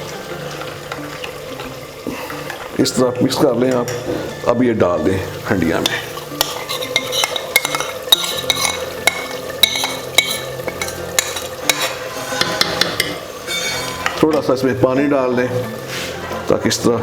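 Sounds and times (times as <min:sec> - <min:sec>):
meat sizzling in a pot: 0:00.0 - 0:17.0
spoon scraping a pot: 0:05.8 - 0:14.4.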